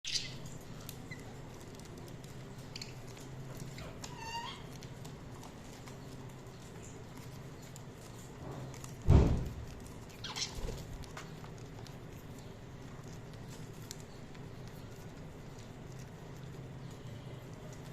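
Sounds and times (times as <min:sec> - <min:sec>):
budgerigars chirping: 0:00.1 - 0:00.4, 0:10.2 - 0:10.6
loud thump: 0:09.1 - 0:09.6.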